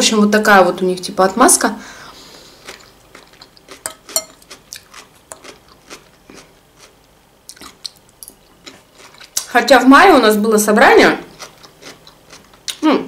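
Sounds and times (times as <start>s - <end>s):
wet crunchy chewing: 2.6s - 9.5s, 11.3s - 12.8s
metal fork clinking on glass: 3.8s - 4.4s.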